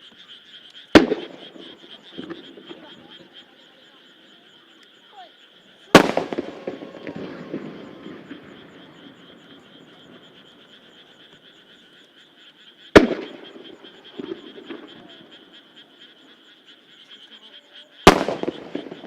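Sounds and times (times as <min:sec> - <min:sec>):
frogs croaking: 0:00.0 - 0:19.0
firework shells booming: 0:00.9 - 0:03.0, 0:05.9 - 0:11.4, 0:12.9 - 0:15.4, 0:18.0 - 0:19.0
firework crackling tail: 0:01.0 - 0:02.8, 0:05.9 - 0:10.6, 0:13.0 - 0:15.1, 0:18.1 - 0:19.0
small firework pops: 0:01.0 - 0:02.9, 0:05.9 - 0:08.5, 0:13.0 - 0:15.2, 0:18.1 - 0:19.0.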